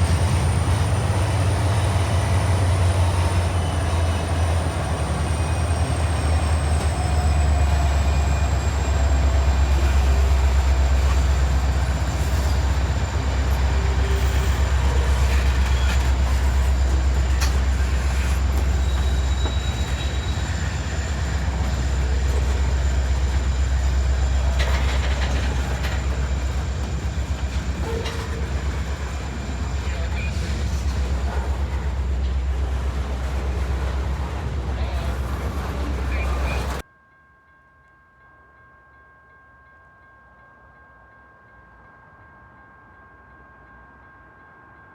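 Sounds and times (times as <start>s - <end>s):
high wheel squeal: 0.0s - 36.8s
train cars rumbling on rails: 0.0s - 36.8s.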